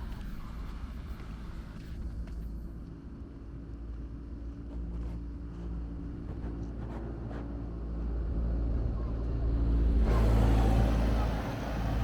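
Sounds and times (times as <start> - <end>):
engine humming: 9.9 - 12.0.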